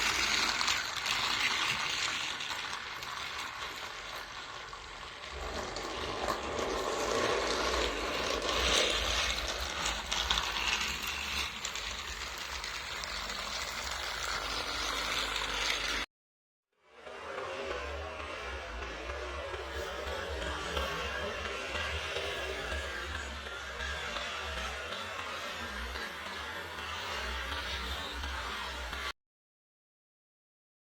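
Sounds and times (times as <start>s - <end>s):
toy train motor whirring: 0.0s - 16.1s, 17.0s - 29.1s.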